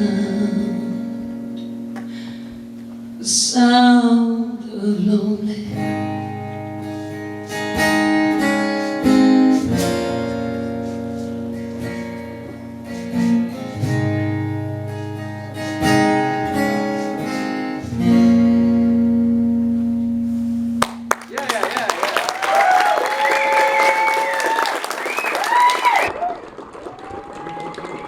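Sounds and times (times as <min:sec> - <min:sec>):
acoustic guitar chords: 0:00.0 - 0:21.3.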